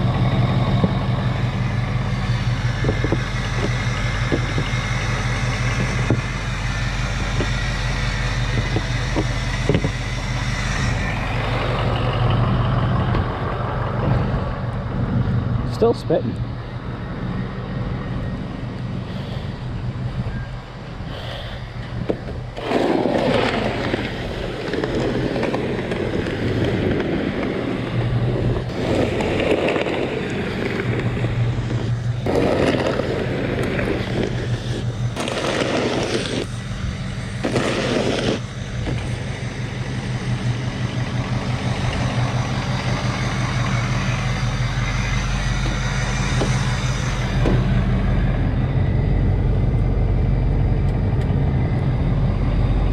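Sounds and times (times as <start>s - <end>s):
truck engine idling: 0.0s - 52.9s
snow shovel scraping snow: 22.6s - 26.2s, 28.7s - 36.7s, 37.4s - 39.5s.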